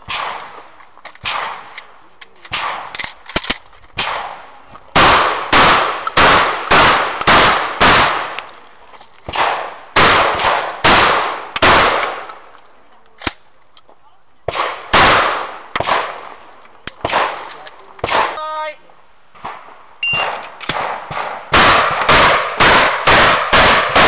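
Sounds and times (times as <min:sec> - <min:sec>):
shotgun shots with echo: 0:00.0 - 0:00.6, 0:01.2 - 0:01.7, 0:02.5 - 0:03.0, 0:04.0 - 0:08.4, 0:09.3 - 0:12.3, 0:14.5 - 0:16.4, 0:17.0 - 0:18.4, 0:19.4 - 0:24.0.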